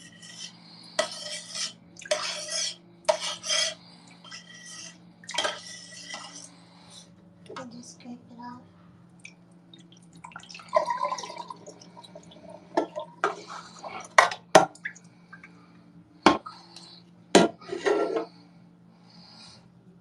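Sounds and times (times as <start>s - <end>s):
dish scraping: 0.0s - 6.6s, 12.5s - 14.7s, 17.4s - 18.4s
water dripping: 9.2s - 13.2s, 14.6s - 15.6s.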